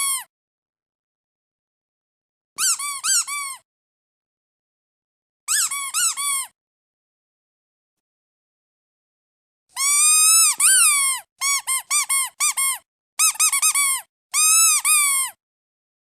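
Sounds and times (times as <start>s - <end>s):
squeaky duck toy squeaking: 0.0s - 0.3s, 2.6s - 3.6s, 5.5s - 6.6s, 9.8s - 15.4s.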